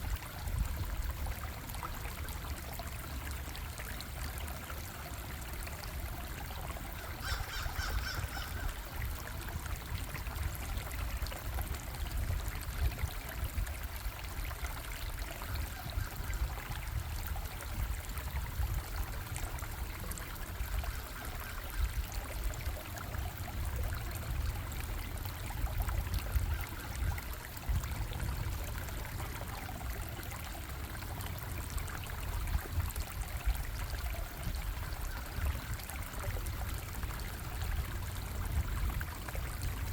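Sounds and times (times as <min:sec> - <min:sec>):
running water stream: 0:00.0 - 0:39.9.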